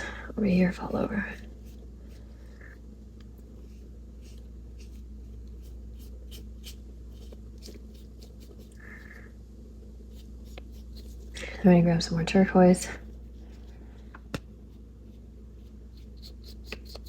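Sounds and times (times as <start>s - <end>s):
steady low hum: 0.0s - 17.0s
paintbrush strokes on paper: 0.8s - 2.8s, 3.5s - 9.2s, 10.0s - 12.0s, 13.0s - 17.0s.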